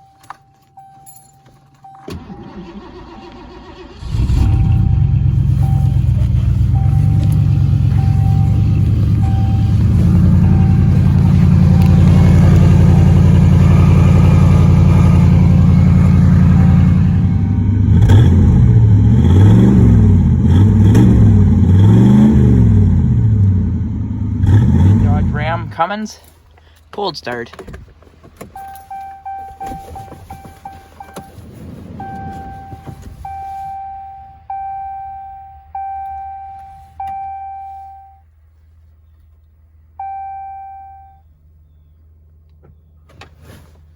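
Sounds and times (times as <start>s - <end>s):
in-cab warning chime: 0.0s - 2.7s, 4.3s - 17.6s, 28.6s - 31.4s, 32.0s - 38.3s, 40.0s - 41.3s
engine idling: 2.1s - 18.2s
short beeping tone: 4.3s - 17.6s, 28.6s - 31.3s, 32.0s - 38.2s, 40.0s - 41.2s.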